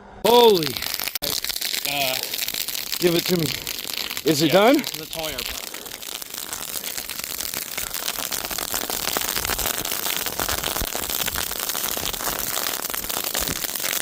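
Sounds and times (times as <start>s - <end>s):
grass fire crackling: 0.2s - 14.0s.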